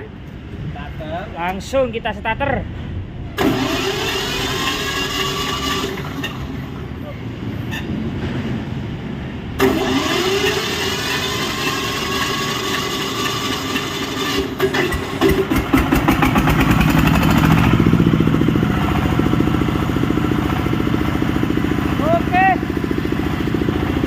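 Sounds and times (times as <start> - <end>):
engine firing and running: 2.9 - 7.0, 9.6 - 24.0
electric starter cranking: 3.4 - 6.8, 9.6 - 21.8.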